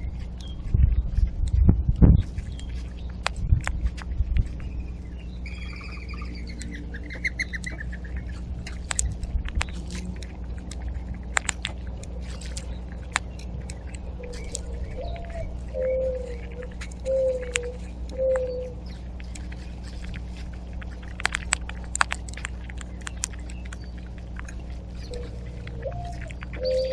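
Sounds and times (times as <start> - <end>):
bird trilled call: 4.6 - 8.5, 13.8 - 19.1, 25.0 - 26.9
mourning dove cooing: 14.1 - 18.9, 24.7 - 26.9.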